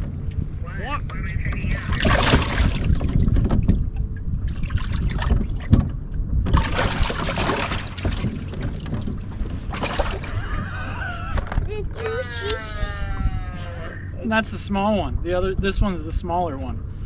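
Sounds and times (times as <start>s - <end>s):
steady low hum: 0.0s - 17.0s
wind buffeting the microphone: 1.4s - 12.2s, 12.8s - 17.0s
water splashing: 1.5s - 5.9s, 6.5s - 11.0s.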